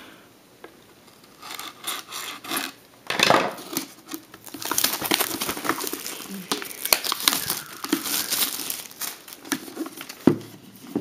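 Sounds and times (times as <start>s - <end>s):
wrapping and cardboard rustling: 3.6s - 11.0s.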